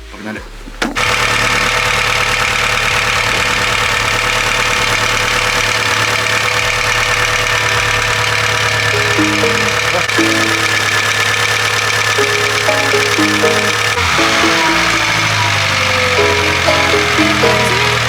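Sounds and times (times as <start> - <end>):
car engine idling with knock: 0.1 - 18.0.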